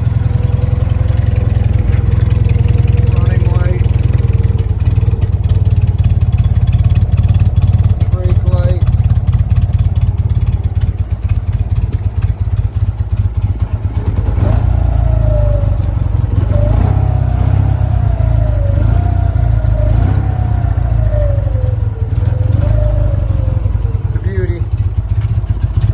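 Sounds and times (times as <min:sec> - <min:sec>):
motorcycle engine running: 0:00.0 - 0:25.9.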